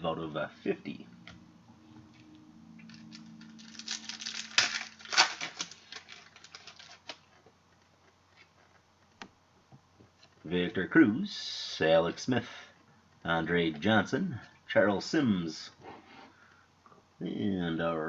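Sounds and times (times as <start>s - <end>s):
faint low hum: 0.0s - 18.0s
plastic packaging crackling: 2.8s - 8.8s.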